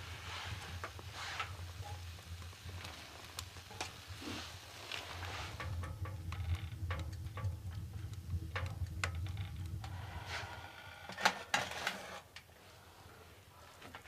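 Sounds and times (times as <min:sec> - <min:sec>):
light clicks and knocks: 0:05.6 - 0:10.0.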